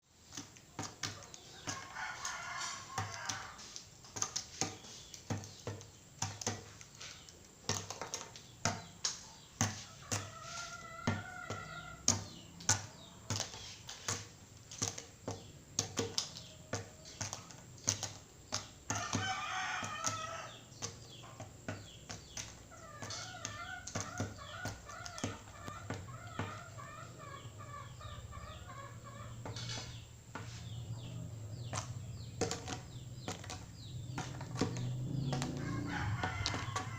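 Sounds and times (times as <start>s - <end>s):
rooster clucking: 9.8s - 13.3s, 22.6s - 36.9s
rooster call: 35.2s - 36.9s.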